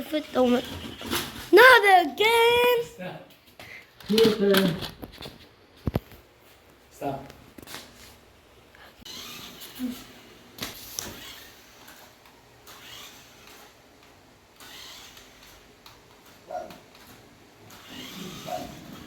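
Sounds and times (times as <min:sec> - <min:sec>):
toy car motor whirring: 0:00.1 - 0:02.7, 0:09.0 - 0:19.0.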